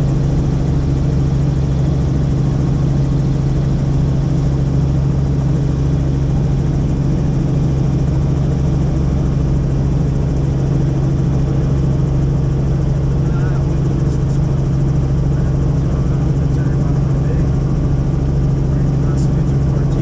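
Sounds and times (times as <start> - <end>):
helicopter rotor and turbine drone: 0.0 - 20.0.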